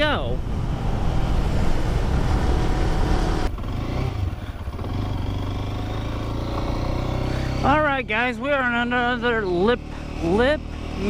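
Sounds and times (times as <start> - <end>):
wind rush on microphone: 0.0 - 5.0
motorcycle engine running: 0.0 - 11.0.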